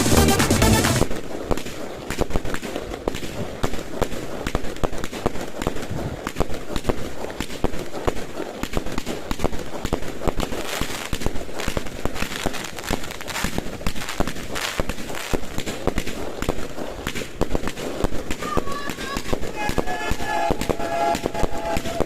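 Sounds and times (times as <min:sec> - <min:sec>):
fireworks popping and cracking: 0:00.0 - 0:22.0
fireworks hissing: 0:09.9 - 0:22.0.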